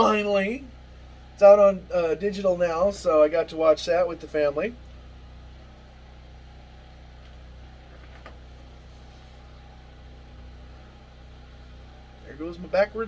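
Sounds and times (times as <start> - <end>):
generator engine humming: 0.0 - 13.0.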